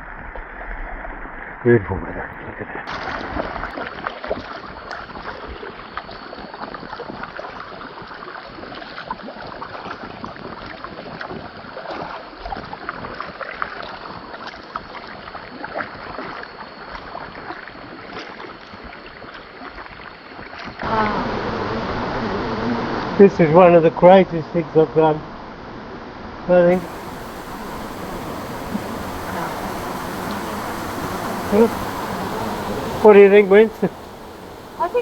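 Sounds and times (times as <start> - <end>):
water splashing around kayak: 26.7 - 35.0
wind on microphone: 26.7 - 35.0.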